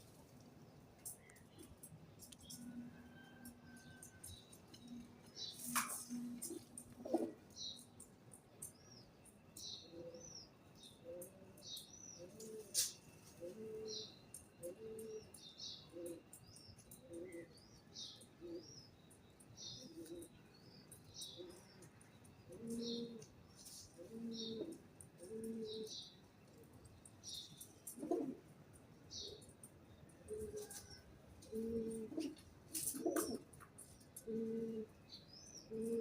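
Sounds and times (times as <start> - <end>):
birds chirping: 3.4 - 36.0
doves cooing: 4.8 - 7.5, 12.2 - 15.3, 19.8 - 20.4, 22.5 - 26.1, 27.8 - 28.4, 30.2 - 33.6, 34.2 - 35.0, 35.6 - 36.0.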